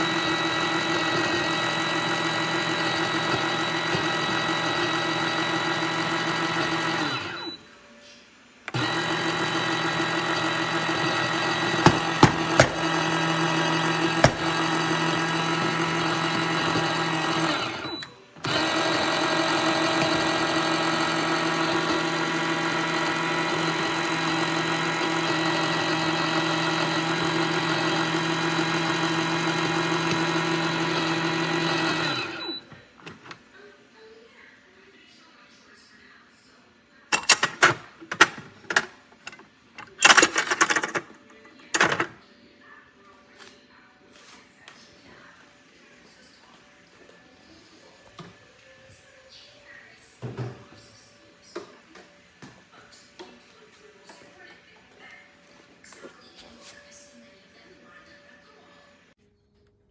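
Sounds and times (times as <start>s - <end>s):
espresso machine humming: 0.0s - 7.5s, 8.7s - 32.6s.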